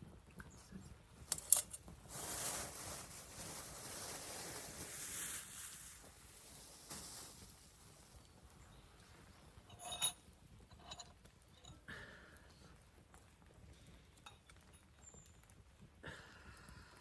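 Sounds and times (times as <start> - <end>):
burning wood popping: 1.1 - 17.0
campfire hissing: 1.9 - 8.6.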